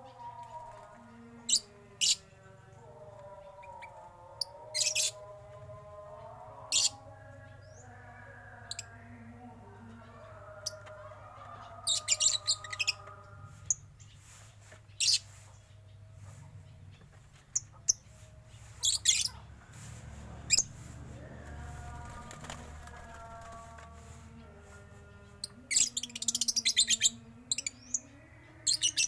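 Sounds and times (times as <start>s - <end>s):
birds chirping shrilly: 18.7s - 19.4s.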